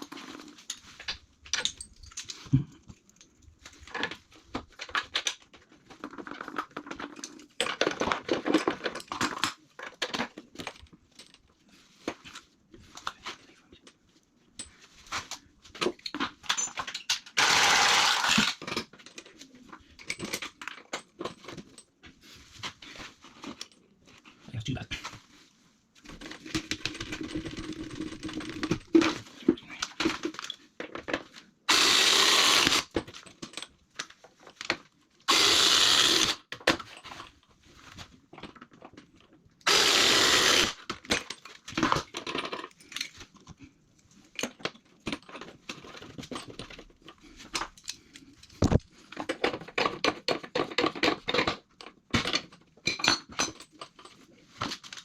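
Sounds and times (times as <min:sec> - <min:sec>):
tools and parts clinking: 0:00.0 - 0:25.2, 0:26.0 - 0:55.0.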